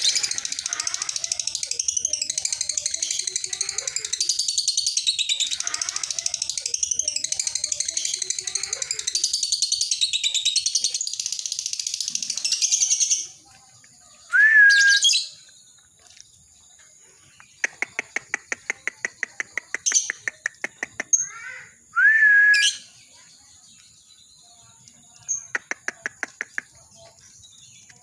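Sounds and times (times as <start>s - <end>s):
lovebird chattering trill: 0.0s - 13.4s, 17.3s - 21.6s, 25.2s - 27.8s
sharp bird call: 14.3s - 15.4s
rapid bird clicks: 17.4s - 21.1s, 25.5s - 26.8s.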